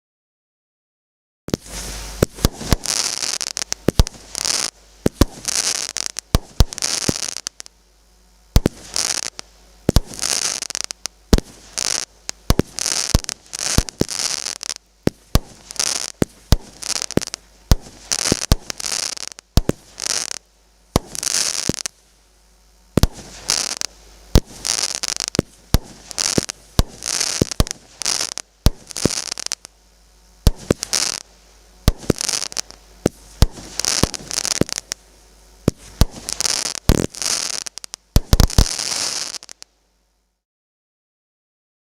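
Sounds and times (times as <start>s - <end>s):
firework shots banging: 1.5s - 7.7s, 8.5s - 21.9s, 23.0s - 29.7s, 30.4s - 35.0s, 35.6s - 39.6s
firework hissing: 1.5s - 7.9s, 8.5s - 39.7s.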